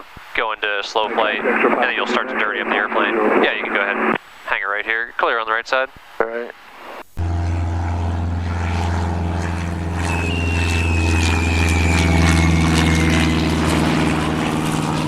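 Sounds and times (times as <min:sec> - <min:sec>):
airplane engines droning: 0:01.0 - 0:04.2, 0:07.2 - 0:15.0
faint tone sliding down: 0:07.2 - 0:14.6.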